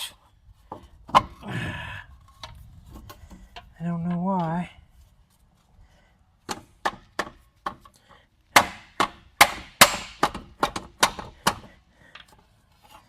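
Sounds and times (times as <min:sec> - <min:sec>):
hammer striking metal wheel hub: 0:08.6 - 0:11.6.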